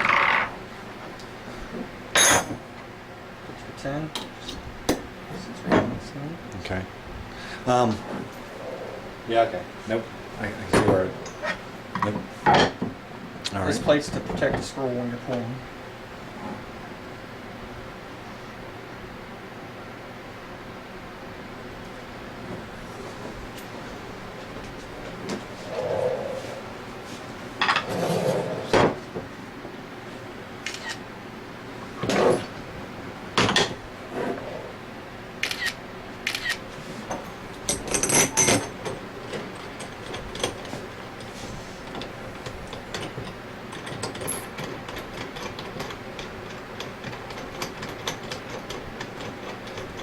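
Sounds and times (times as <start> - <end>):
metal tools clinking: 37.1 - 39.0.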